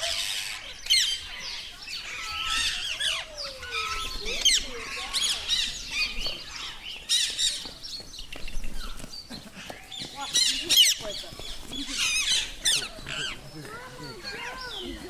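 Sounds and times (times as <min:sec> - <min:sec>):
parrots chirping and squawking: 0:00.0 - 0:07.7, 0:09.6 - 0:15.0.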